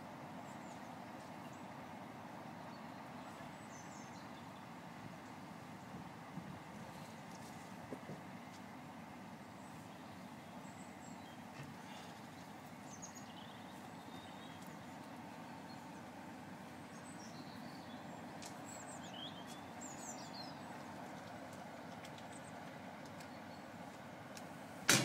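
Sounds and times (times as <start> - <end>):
small birds chirping: 0.2 - 24.8
steady low rumble: 2.9 - 11.5.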